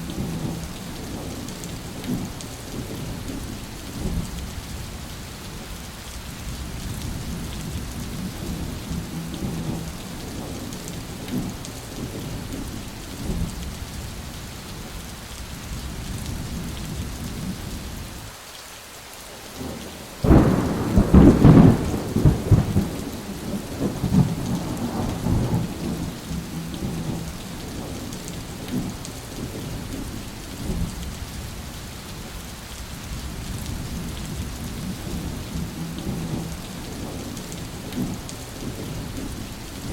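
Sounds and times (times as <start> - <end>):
low rolling thunder: 0.0 - 4.8, 6.4 - 13.8, 19.4 - 31.2, 33.2 - 39.9
heavy rain: 0.0 - 39.9
loud thunderclap: 19.7 - 27.9.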